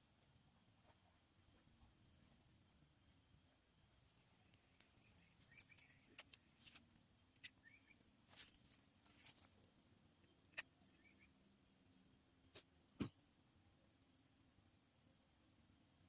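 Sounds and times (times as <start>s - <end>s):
small birds chirping: 4.0s - 11.4s.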